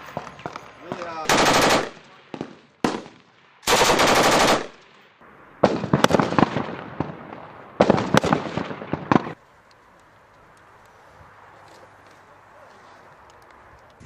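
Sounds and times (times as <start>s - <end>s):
gunshots: 0.0s - 5.0s, 5.6s - 9.4s
rapid automatic gunfire: 1.2s - 2.0s, 2.8s - 4.8s.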